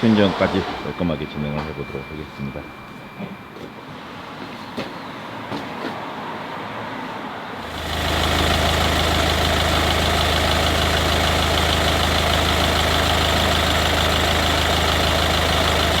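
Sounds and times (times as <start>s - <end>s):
diesel engine idling: 7.6s - 16.0s.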